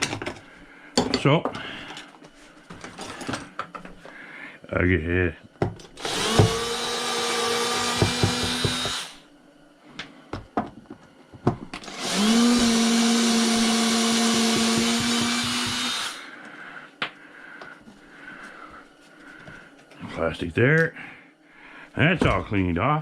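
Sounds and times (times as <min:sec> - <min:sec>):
power tool motor whine: 0:05.9 - 0:09.2, 0:11.8 - 0:16.3.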